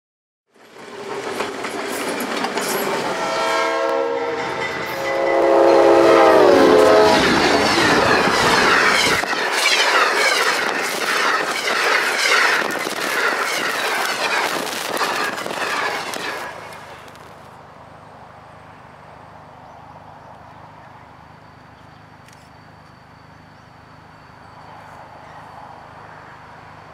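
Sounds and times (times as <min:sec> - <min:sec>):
train wheels clickety-clack: 0:00.5 - 0:03.6, 0:04.2 - 0:17.5
train air horn chord: 0:03.0 - 0:07.6.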